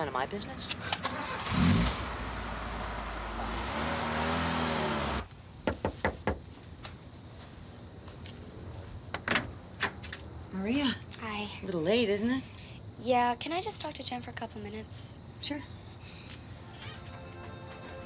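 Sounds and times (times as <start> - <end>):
car engine revving: 1.2 - 5.3
knocking on a door: 5.6 - 6.4.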